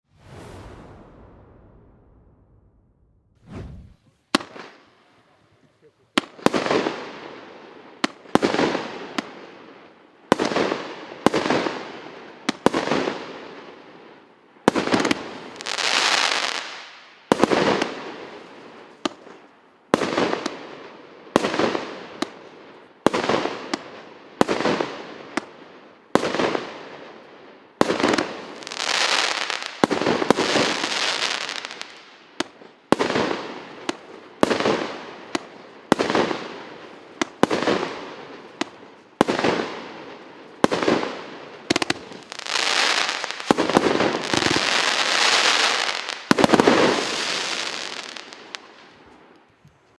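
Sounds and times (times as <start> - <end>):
fireworks bangs with hissing: 3.5 - 9.6, 14.7 - 20.8, 27.8 - 49.3.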